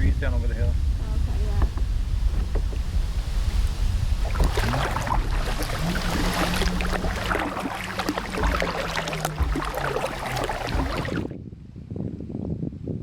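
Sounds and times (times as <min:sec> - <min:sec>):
wind rumble on microphone: 0:00.0 - 0:13.0
water splashing off paddle: 0:02.3 - 0:11.3.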